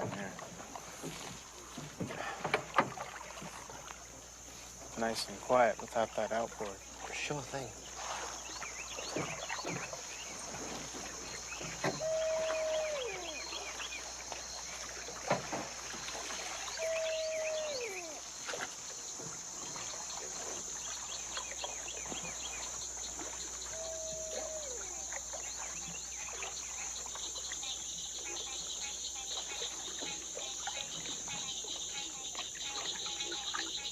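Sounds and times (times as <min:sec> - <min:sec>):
frogs chirping: 0:00.0 - 0:33.9
insects droning: 0:00.0 - 0:33.9
animal call sliding down in pitch: 0:12.0 - 0:13.5.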